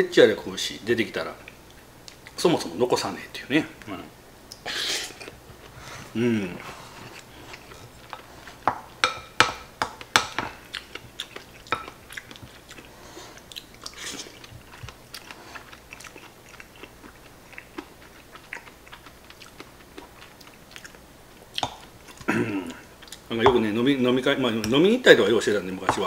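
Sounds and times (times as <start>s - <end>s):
chewing with wet mouth sounds: 10.0s - 23.3s.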